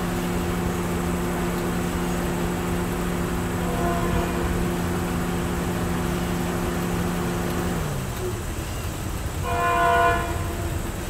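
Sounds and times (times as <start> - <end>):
train passing: 0.0 - 7.1
held low tones: 0.0 - 7.8.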